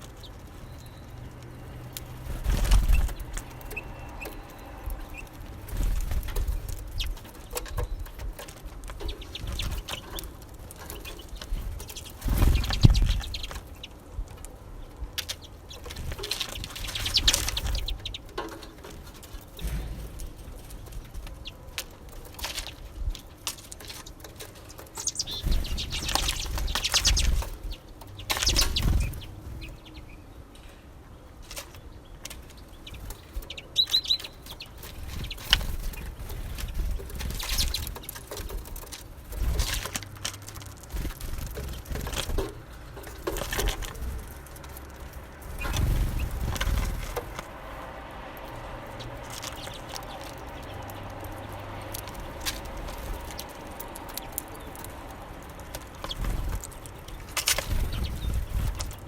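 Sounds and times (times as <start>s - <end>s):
wing fluttering: 0.0s - 14.6s, 15.2s - 30.2s, 31.4s - 59.0s
birds pecking and clicking: 0.0s - 59.0s.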